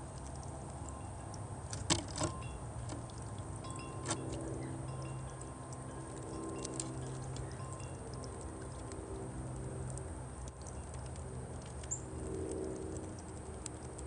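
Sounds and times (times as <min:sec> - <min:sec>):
wind chimes ringing: 0:00.8 - 0:01.6, 0:02.2 - 0:02.9, 0:03.6 - 0:08.6.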